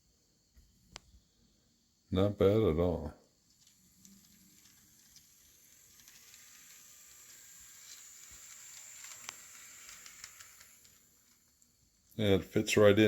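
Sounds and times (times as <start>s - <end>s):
model train whirring on track: 3.5s - 11.6s.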